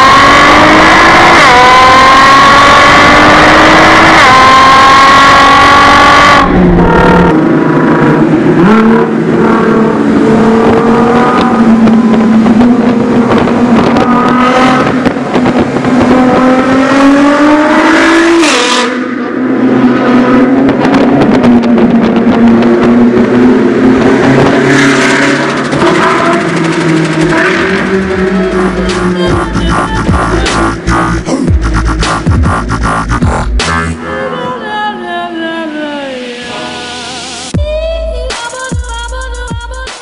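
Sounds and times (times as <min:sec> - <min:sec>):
car engine accelerating hard: 0:00.0 - 0:34.1
gear upshifts: 0:20.8 - 0:34.0.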